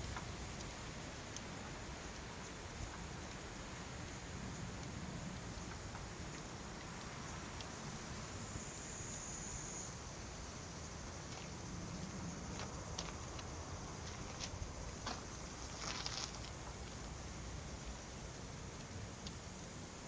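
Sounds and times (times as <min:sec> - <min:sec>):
low hiss: 0:00.0 - 0:20.0
insects calling: 0:05.5 - 0:20.0
faint clicks: 0:18.8 - 0:19.4.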